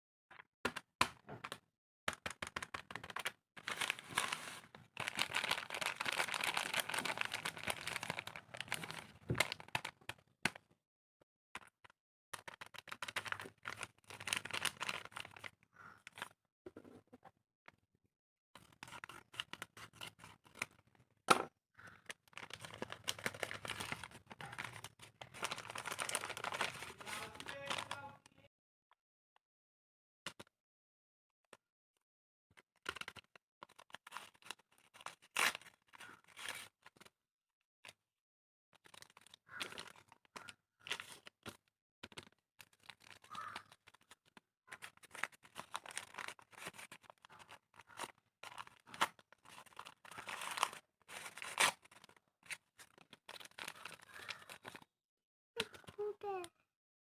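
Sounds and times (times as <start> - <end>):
paper bag crinkling and tearing: 2.8 - 10.0, 12.6 - 15.6, 22.2 - 28.2, 44.7 - 54.8.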